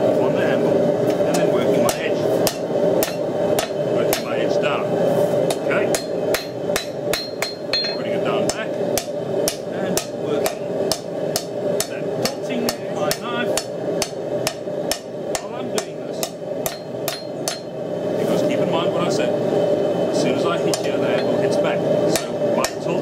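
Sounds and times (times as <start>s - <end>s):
steady hum: 0.0s - 23.0s
hammer striking steel on anvil: 1.3s - 4.4s, 5.5s - 17.8s, 20.7s - 21.4s, 22.1s - 22.9s.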